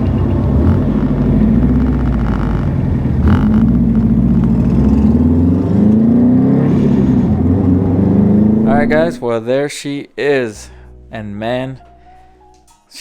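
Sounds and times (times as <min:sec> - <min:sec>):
turbocharged engine under load: 0:00.0 - 0:09.1.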